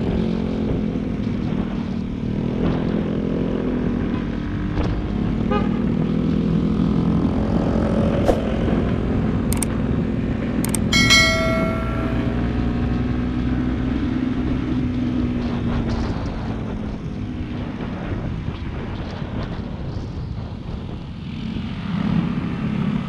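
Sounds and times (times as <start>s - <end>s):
sharp metallic ring: 10.8s - 12.8s.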